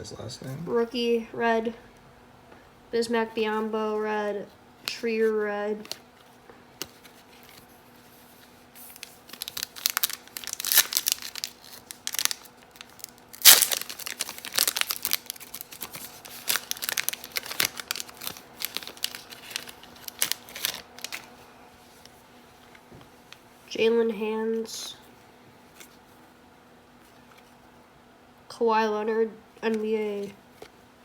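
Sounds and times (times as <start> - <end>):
faint steady hum: 0.0 - 31.0
wrapper tearing and crinkling: 8.8 - 21.4.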